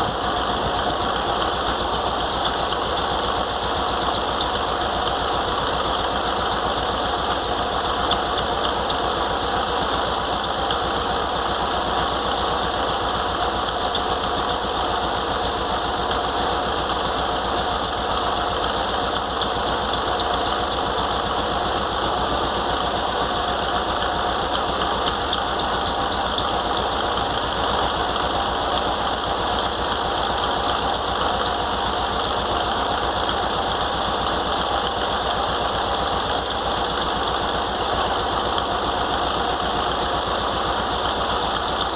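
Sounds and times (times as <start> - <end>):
air-cooled car engine running: 0.0 - 41.9.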